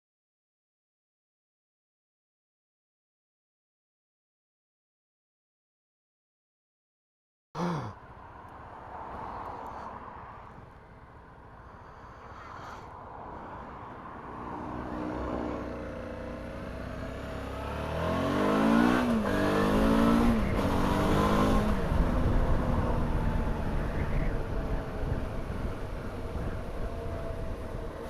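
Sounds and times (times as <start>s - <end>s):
motorcycle engine accelerating: 14.7s - 28.0s
wind rumble on microphone: 19.8s - 28.0s.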